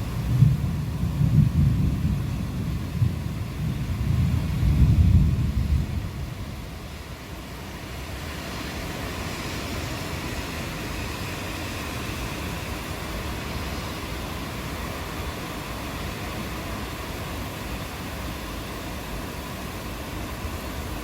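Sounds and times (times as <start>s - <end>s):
low thunder rumble: 0.0s - 6.7s
steady rainfall: 0.0s - 21.0s.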